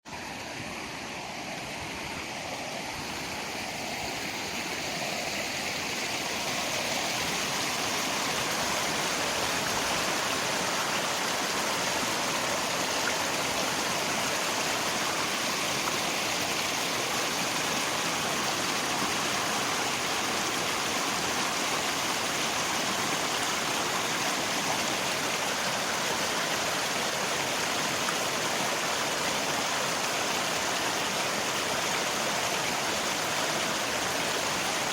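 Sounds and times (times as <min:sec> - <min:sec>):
river water rushing: 0:00.1 - 0:34.9.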